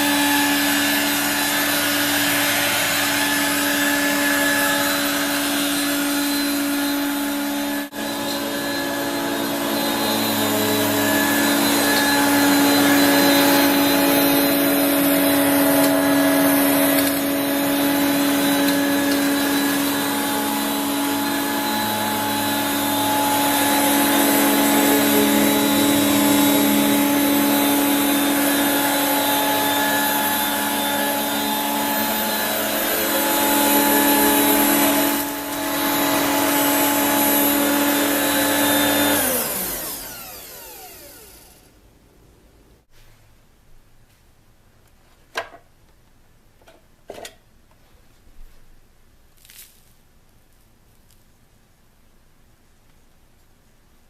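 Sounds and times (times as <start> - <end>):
stick vacuum running: 0.0 - 41.8.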